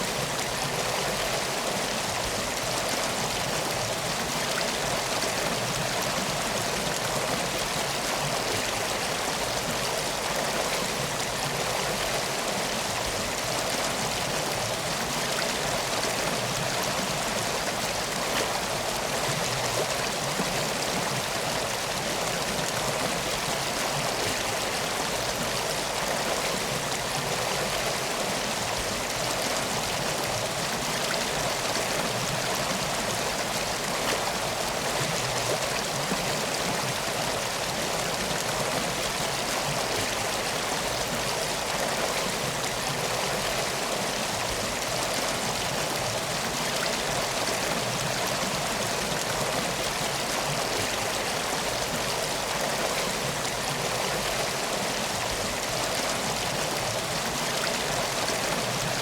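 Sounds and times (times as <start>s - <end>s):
river flowing: 0.0s - 59.0s.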